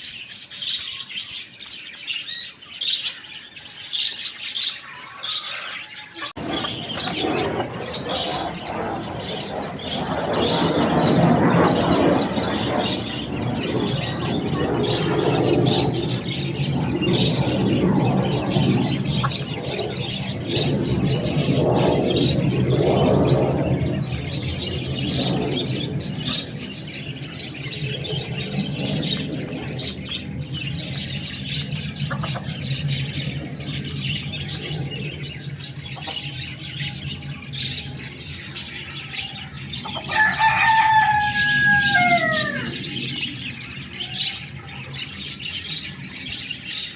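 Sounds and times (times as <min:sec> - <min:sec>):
steady noisy background: 0:00.0 - 0:46.9
chickens clucking: 0:04.0 - 0:08.7, 0:19.0 - 0:19.6, 0:32.0 - 0:32.6
rooster crowing: 0:40.0 - 0:42.9.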